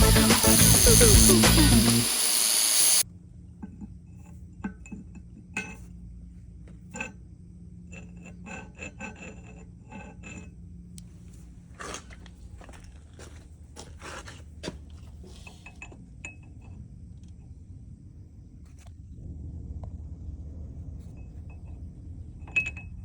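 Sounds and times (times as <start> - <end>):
metal scraping: 0.0 - 3.0
low steady hum: 14.9 - 23.0.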